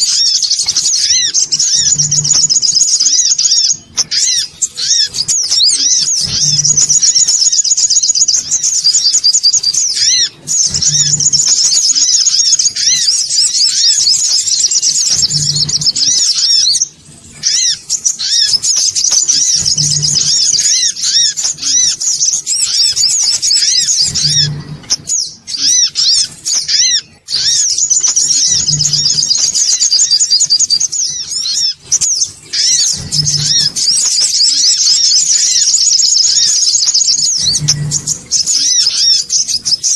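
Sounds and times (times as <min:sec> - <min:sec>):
fast high-pitched bird chirps: 0:00.0 - 0:39.9
short low hum: 0:24.0 - 0:25.2, 0:37.4 - 0:38.4.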